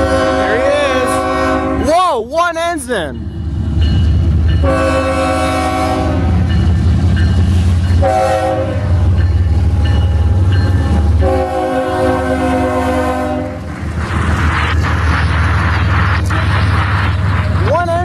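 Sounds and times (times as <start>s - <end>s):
locomotive air horn blasts: 0.0s - 1.8s, 4.6s - 6.5s, 8.0s - 9.1s, 11.2s - 13.6s
locomotive engine rumble: 0.0s - 18.0s.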